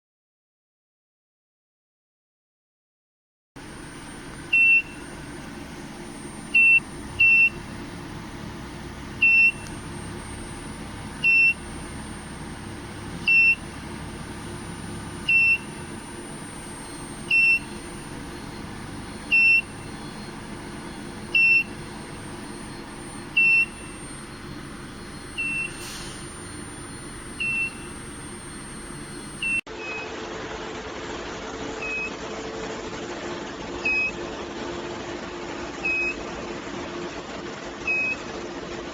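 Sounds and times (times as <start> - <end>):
thin high whine: 3.6 - 30.0
machine hum: 3.6 - 38.8
short high electronic beep: 22.4 - 30.1.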